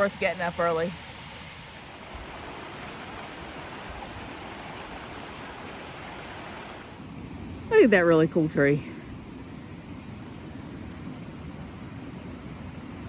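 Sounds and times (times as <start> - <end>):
water rushing over rocks: 0.0 - 7.1.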